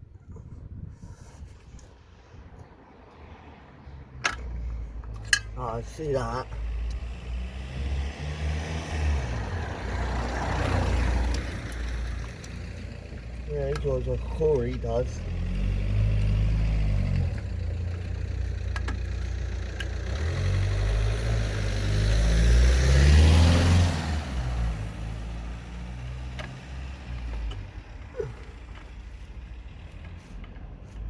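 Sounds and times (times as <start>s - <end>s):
car driving past: 6.6s - 12.8s, 20.0s - 28.0s.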